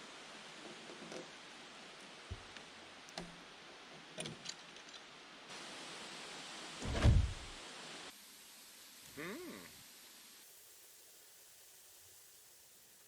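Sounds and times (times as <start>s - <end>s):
steady hiss: 0.0s - 13.0s
heavy thump: 6.8s - 7.5s.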